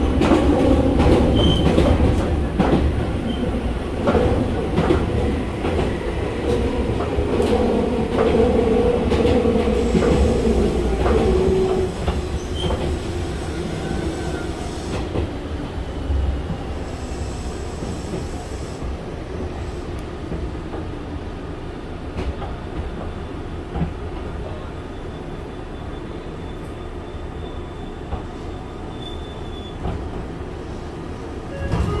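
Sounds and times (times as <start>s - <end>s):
wheels rumbling on rail: 0.0s - 32.0s.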